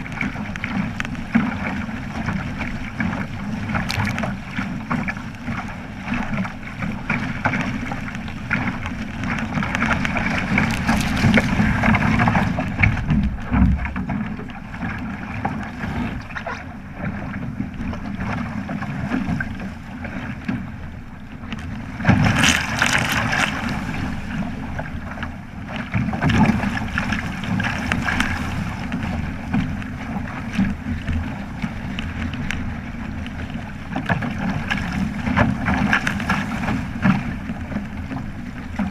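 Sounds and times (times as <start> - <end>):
water splashing against hull: 0.0 - 38.9
wind buffeting microphone: 7.6 - 19.6.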